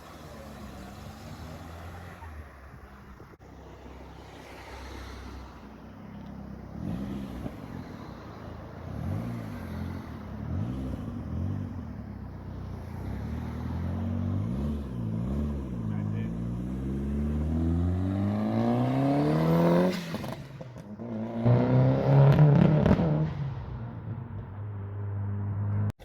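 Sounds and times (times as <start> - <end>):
car engine revving: 6.1 - 24.4.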